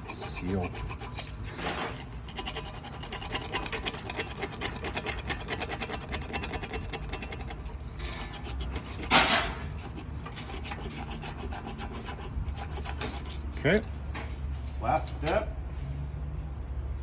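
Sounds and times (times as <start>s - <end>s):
short scrape: 0.0s - 5.5s
patch roller rubbing on tire: 0.0s - 13.4s.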